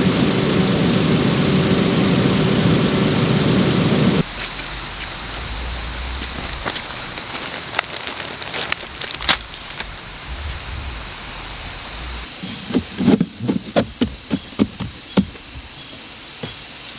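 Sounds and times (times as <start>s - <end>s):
insect chorus: 0.0s - 16.9s.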